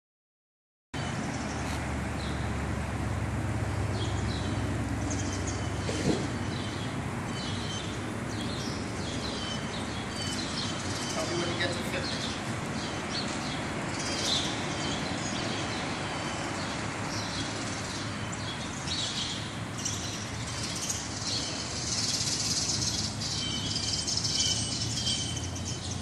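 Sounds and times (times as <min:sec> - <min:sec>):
birds chirping and twittering: 0:01.0 - 0:02.6, 0:03.6 - 0:26.0
outdoor background hiss: 0:01.1 - 0:26.0.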